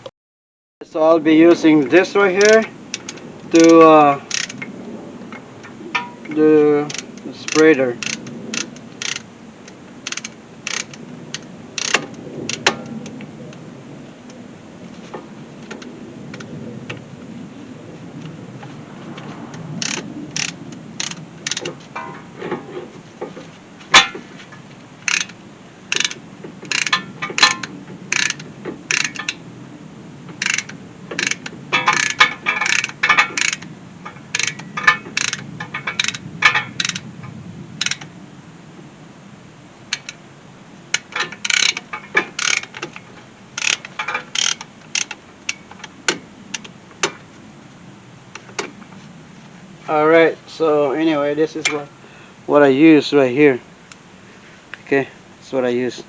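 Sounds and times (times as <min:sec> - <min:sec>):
hand tool clicking on metal: 0:02.4 - 0:04.6, 0:06.0 - 0:09.3, 0:10.1 - 0:12.9, 0:19.8 - 0:22.1, 0:25.1 - 0:29.4, 0:30.4 - 0:37.0, 0:39.9 - 0:40.2, 0:40.9 - 0:43.0, 0:43.6 - 0:47.2.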